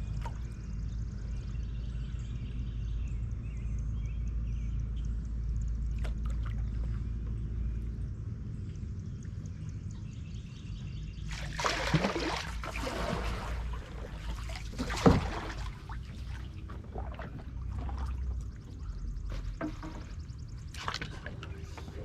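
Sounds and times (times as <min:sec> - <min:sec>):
low steady rumble: 0:00.0 - 0:22.0
water splashing from paddling: 0:11.3 - 0:22.0.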